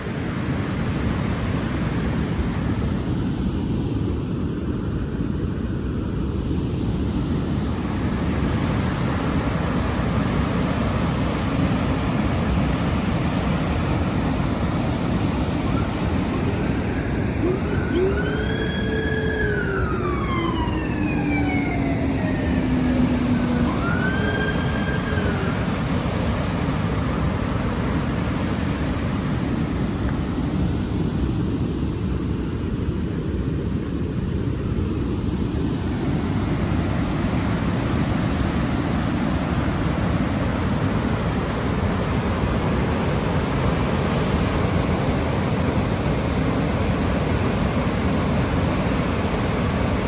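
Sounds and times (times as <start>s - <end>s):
waterfall rushing: 7.2s - 30.9s
distant siren: 7.8s - 30.7s.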